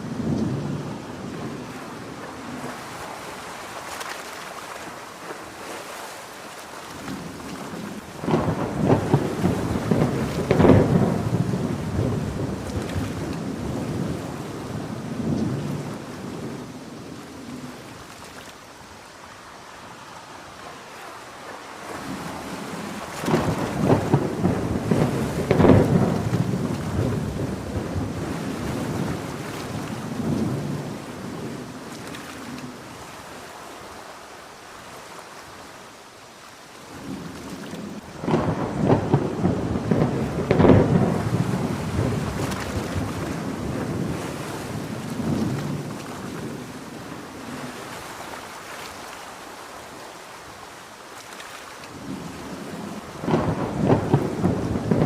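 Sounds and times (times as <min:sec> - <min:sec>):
heavy rain: 0:00.0 - 0:55.0
thunder rolling: 0:07.2 - 0:16.7, 0:22.0 - 0:31.7, 0:37.9 - 0:47.2, 0:52.0 - 0:55.0.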